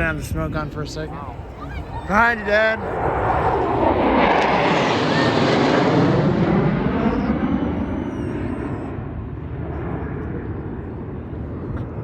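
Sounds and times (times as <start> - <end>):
fighter jet flyover: 0.0 - 12.0.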